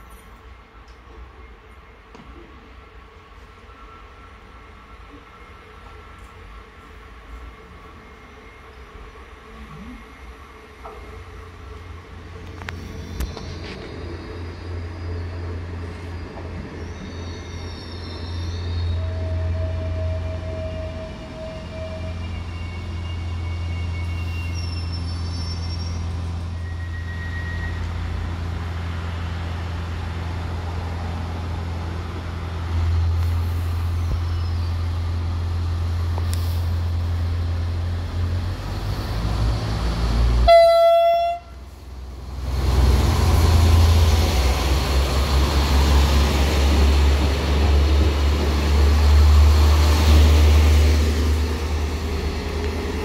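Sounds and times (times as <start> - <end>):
train engine rumble: 0.0 - 53.0
brake squeals: 12.6 - 28.3, 33.0 - 35.3.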